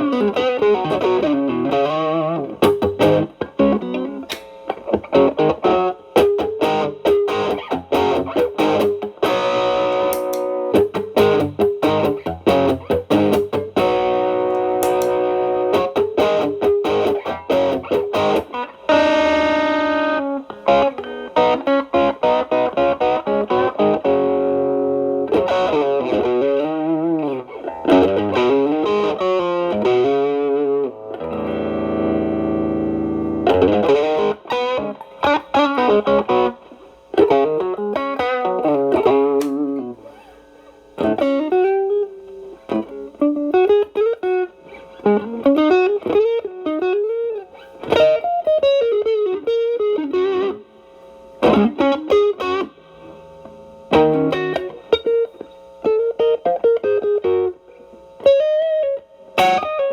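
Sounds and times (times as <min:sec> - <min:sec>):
guitar chord ringing: 0:00.0 - 0:59.9
overdriven electric guitar blues lead: 0:00.0 - 0:59.9.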